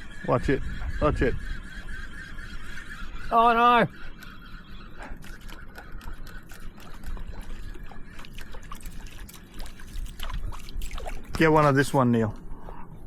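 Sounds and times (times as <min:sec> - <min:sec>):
water splashing and trickling: 0:05.0 - 0:12.4.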